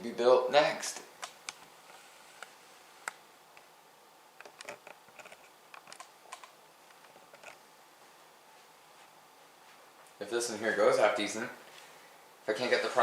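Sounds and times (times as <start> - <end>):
faint keyboard typing: 4.4 - 7.6.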